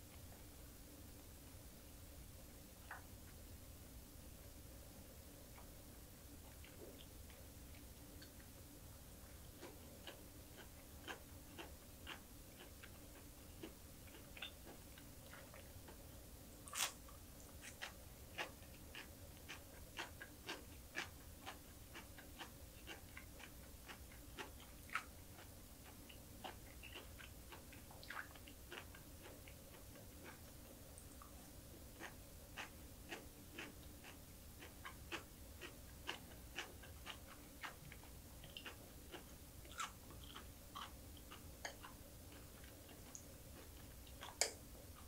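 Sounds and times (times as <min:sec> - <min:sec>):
crunchy chewing: 0:09.2 - 0:45.0.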